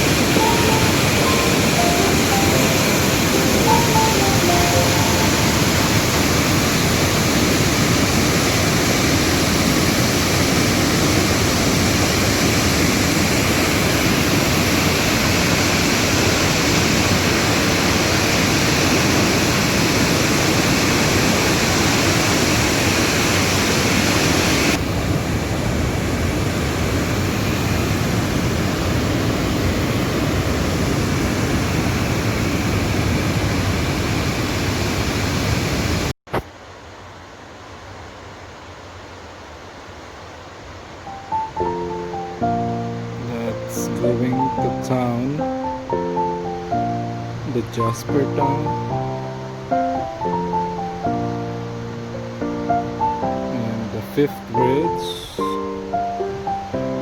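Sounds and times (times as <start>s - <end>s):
river water rushing: 0.0s - 26.2s.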